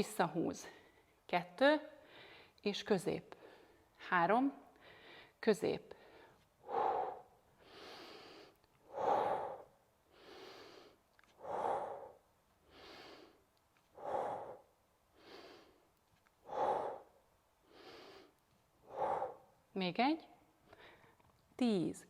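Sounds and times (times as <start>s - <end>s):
woman breathing: 2.0s - 2.6s, 3.3s - 4.0s, 4.7s - 19.7s, 20.6s - 21.4s.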